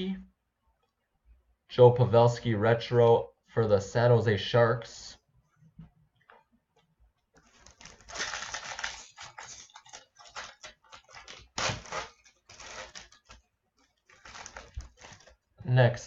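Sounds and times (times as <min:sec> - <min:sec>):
trading cards rustling and crinkling: 0:07.3 - 0:15.6.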